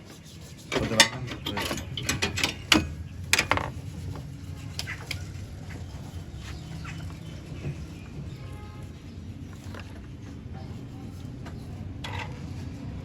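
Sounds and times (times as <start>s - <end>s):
metallic clicks and knocks: 0.7s - 3.8s.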